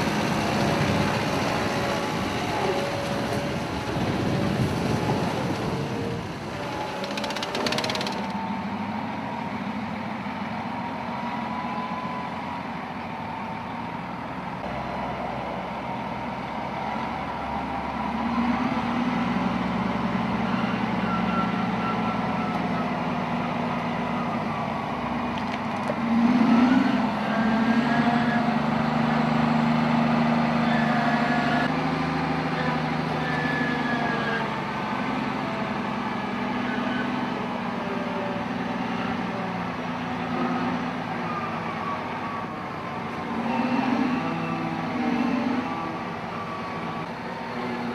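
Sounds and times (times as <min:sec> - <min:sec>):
machinery whining: 0:00.0 - 0:09.6
construction machinery engine hum: 0:00.0 - 0:47.9.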